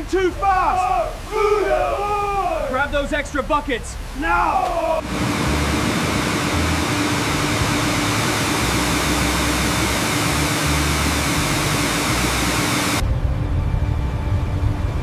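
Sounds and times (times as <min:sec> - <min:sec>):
constant low hum: 0:03.9 - 0:15.0
loud rushing noise: 0:05.0 - 0:13.0.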